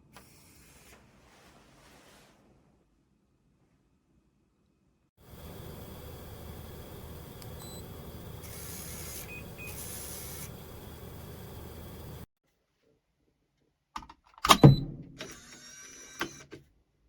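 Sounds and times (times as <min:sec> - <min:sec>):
steady hum and hiss: 0:05.2 - 0:12.3
high electronic beeps: 0:07.6 - 0:11.3.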